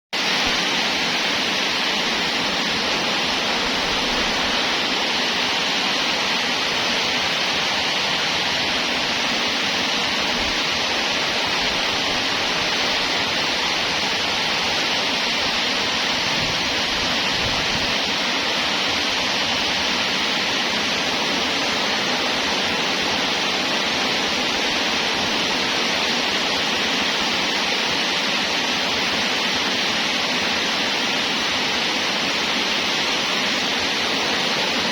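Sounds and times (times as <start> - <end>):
steady rushing hiss: 0.2 - 34.9.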